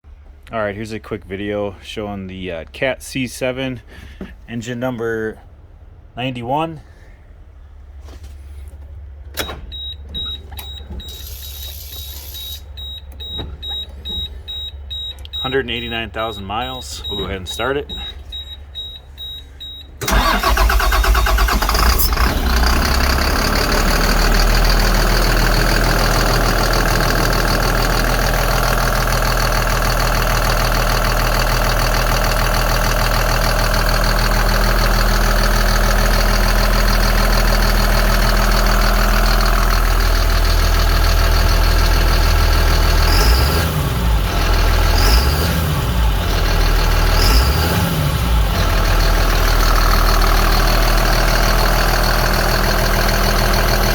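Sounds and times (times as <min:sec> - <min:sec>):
diesel engine running: 0:03.8 - 0:53.9
diesel engine revving: 0:20.0 - 0:53.9.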